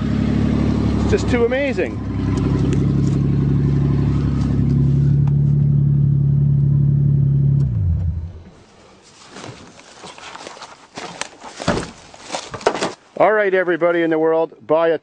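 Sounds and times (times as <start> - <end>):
faint rustles and knocks: 8.6 - 13.1.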